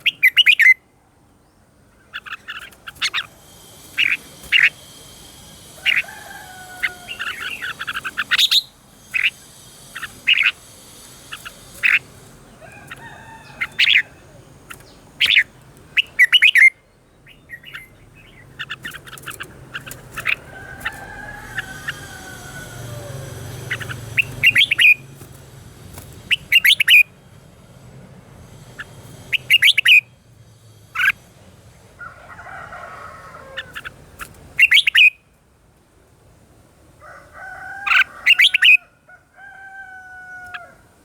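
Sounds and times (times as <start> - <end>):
bulbul singing: 0.0 - 27.3, 28.6 - 31.2, 33.4 - 35.4
steady high-pitched hiss: 0.0 - 41.0.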